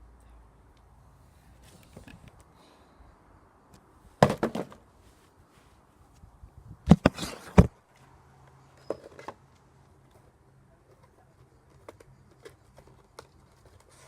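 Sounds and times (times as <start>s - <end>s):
pole striking a cardboard box: 4.2s - 4.8s, 6.9s - 7.7s.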